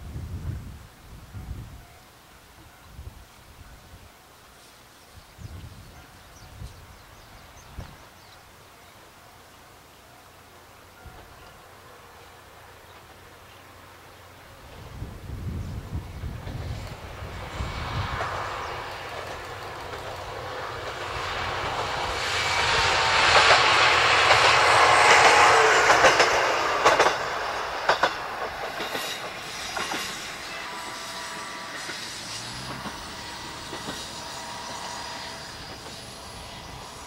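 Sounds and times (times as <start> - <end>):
diesel railcar passing: 0.0 - 37.0
wheels clicking over rail joints: 23.3 - 30.4.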